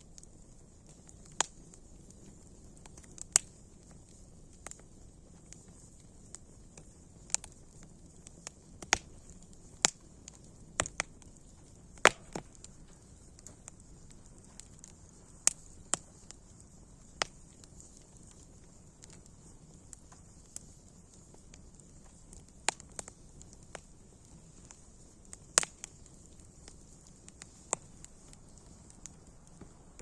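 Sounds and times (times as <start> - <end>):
faint steady hiss: 0.0 - 30.0
wood fire crackling: 0.0 - 30.0.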